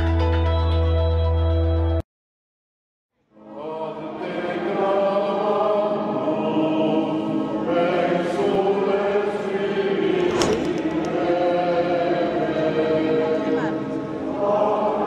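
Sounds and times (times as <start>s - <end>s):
choral singing: 3.3s - 15.0s.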